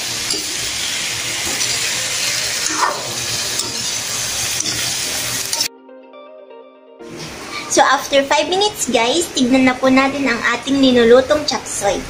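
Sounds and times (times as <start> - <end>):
sauce sizzling in a hot pan: 0.0 - 5.7.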